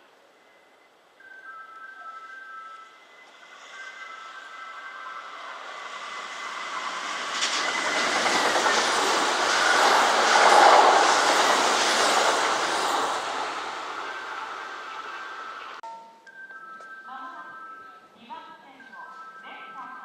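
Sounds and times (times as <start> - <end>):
electric train wheel clatter: 3.1 - 15.8.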